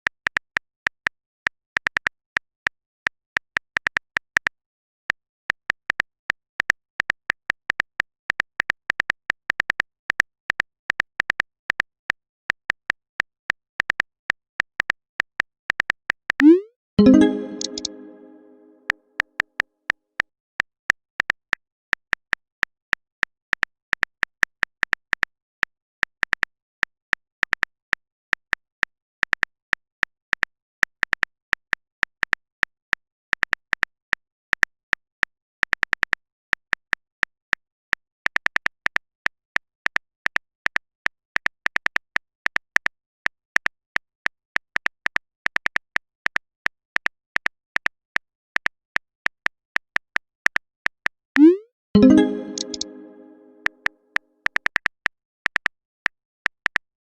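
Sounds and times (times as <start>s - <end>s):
phone keyboard typing clicks: 51.4s - 53.7s.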